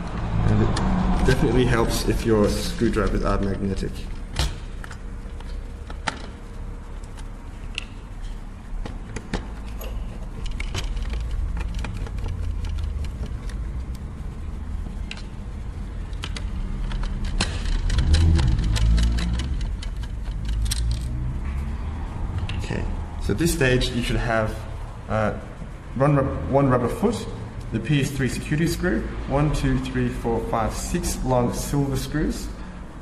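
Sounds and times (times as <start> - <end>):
steady low rumble: 0.0 - 33.0
screwdriver and screws clicking: 16.1 - 21.2.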